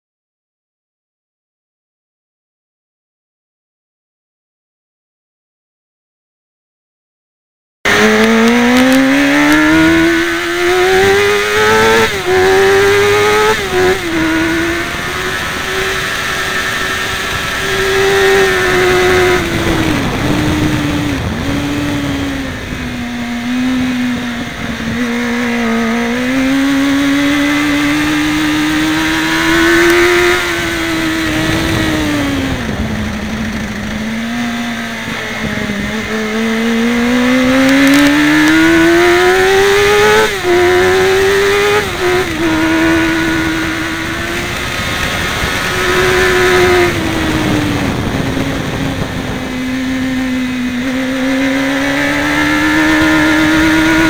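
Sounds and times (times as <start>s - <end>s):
motorcycle engine revving: 7.8s - 54.0s.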